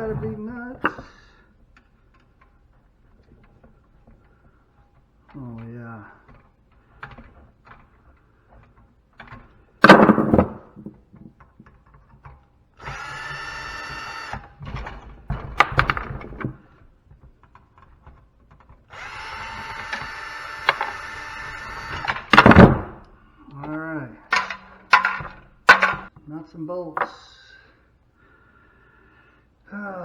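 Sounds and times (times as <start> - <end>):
power drill running: 12.8 - 15.0, 18.9 - 22.7
loud clatter: 19.0 - 23.0, 24.3 - 26.1
sharp knocks: 19.0 - 23.1, 24.3 - 26.1.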